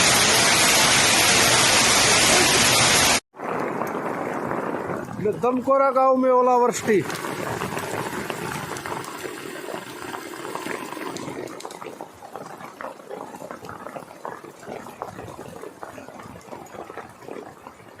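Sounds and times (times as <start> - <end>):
hail and rain falling: 0.0 - 12.2.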